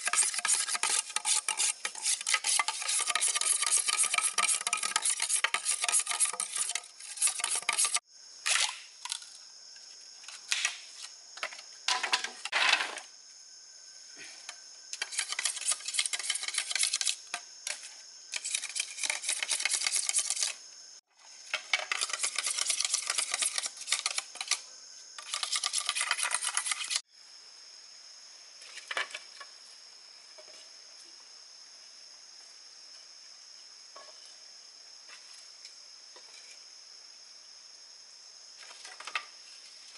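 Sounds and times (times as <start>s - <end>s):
scratchy scraping and rustling: 0.0s - 8.0s, 15.0s - 20.6s, 25.2s - 27.0s
faint outdoor ambience: 0.0s - 39.9s
insects chirring: 0.0s - 39.9s.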